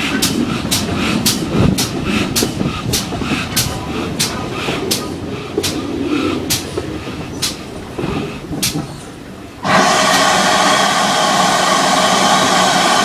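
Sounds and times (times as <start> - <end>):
train carriage rumbling: 0.0 - 13.0
wheel clicks over rail joints: 0.0 - 13.0
steam locomotive whistle: 9.6 - 13.0.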